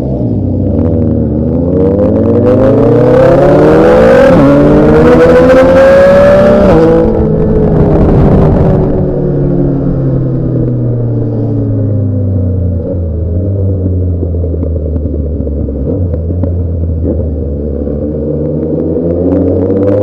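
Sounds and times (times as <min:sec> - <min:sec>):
motorcycle engine: 0:00.0 - 0:20.0.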